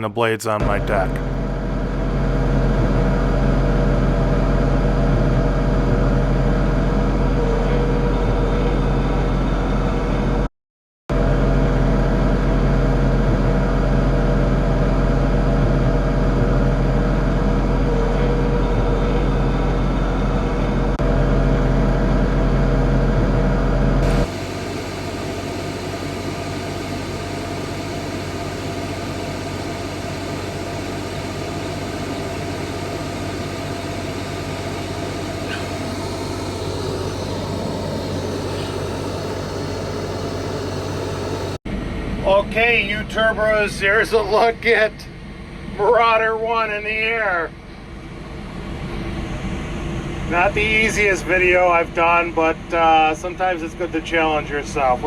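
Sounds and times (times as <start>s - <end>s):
tractor diesel engine running: 0.1s - 10.5s, 11.1s - 42.4s
quieter steady hum: 23.2s - 54.9s.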